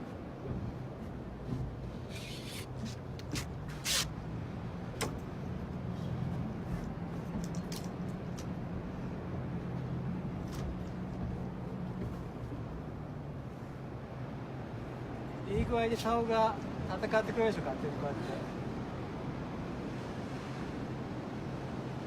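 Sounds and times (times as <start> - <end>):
boat engine humming: 0.0 - 15.4.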